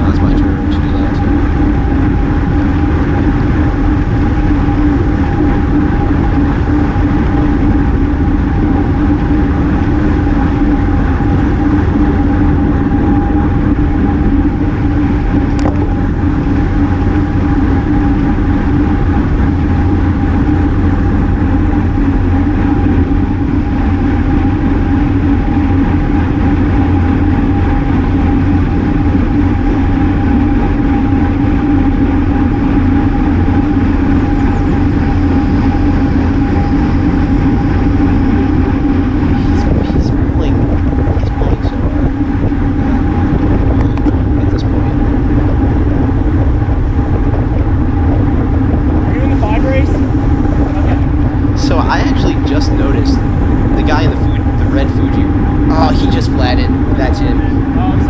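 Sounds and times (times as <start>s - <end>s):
constant hum: 0.0s - 58.0s
wind and road rush: 0.0s - 58.0s.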